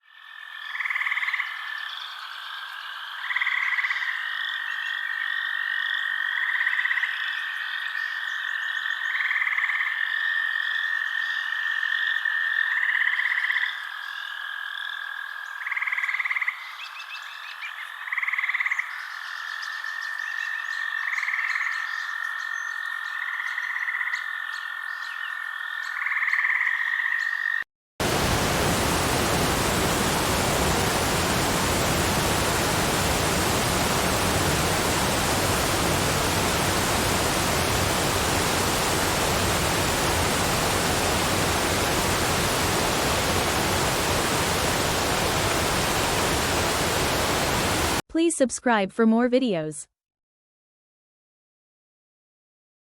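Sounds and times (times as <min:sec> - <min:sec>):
frogs croaking: 0:00.0 - 0:48.0
falling water rushing: 0:28.0 - 0:48.0.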